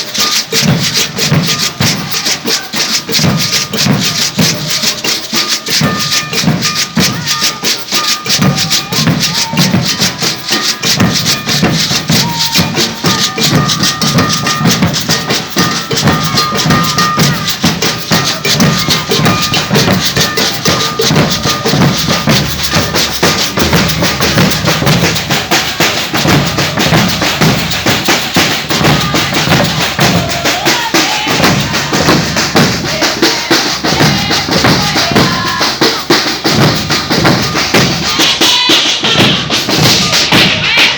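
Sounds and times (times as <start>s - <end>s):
rattling shakers: 0.0s - 40.9s
snare drums: 0.0s - 40.9s
deep drums: 8.4s - 40.9s.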